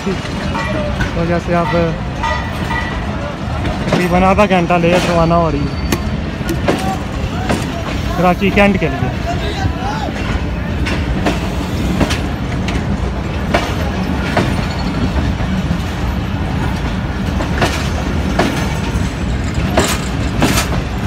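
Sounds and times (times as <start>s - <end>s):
train wheels clacking on rails: 0.0s - 21.0s.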